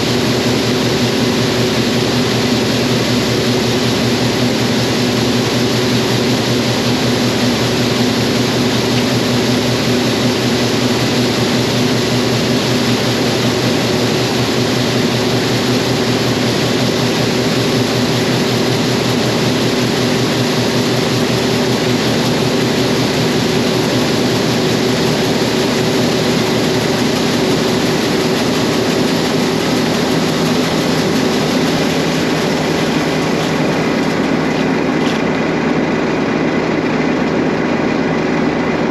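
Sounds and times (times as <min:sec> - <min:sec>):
combine engine hum: 0:00.0 - 0:38.9
threshing machinery rushing: 0:23.6 - 0:36.0.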